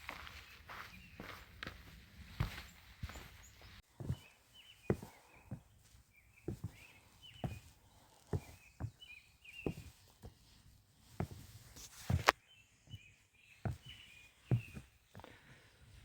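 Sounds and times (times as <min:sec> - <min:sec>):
scuffing step: 0:00.0 - 0:04.3, 0:04.9 - 0:10.0, 0:11.2 - 0:12.4
footsteps on wet steps: 0:00.0 - 0:10.5.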